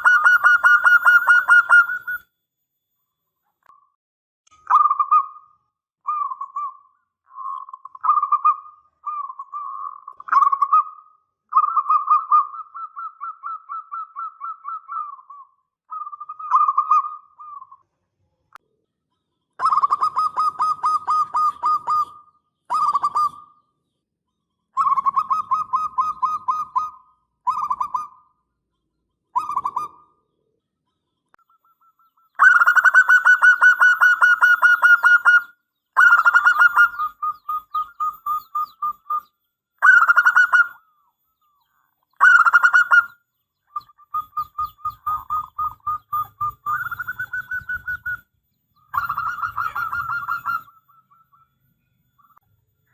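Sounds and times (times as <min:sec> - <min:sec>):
dove cooing: 0:00.0 - 0:02.2, 0:07.4 - 0:17.8, 0:19.6 - 0:23.6, 0:24.8 - 0:28.3, 0:29.4 - 0:30.3, 0:31.6 - 0:41.0, 0:42.2 - 0:48.3, 0:48.9 - 0:51.5.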